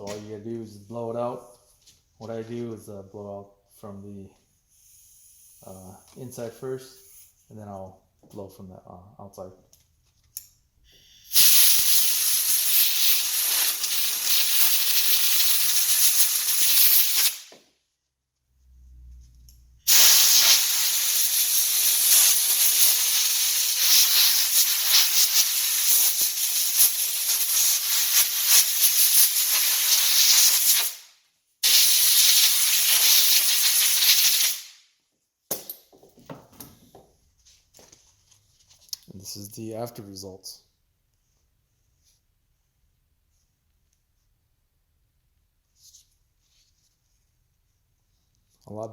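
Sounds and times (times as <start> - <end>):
compressed air hissing: 10.9 - 17.5, 19.8 - 34.8.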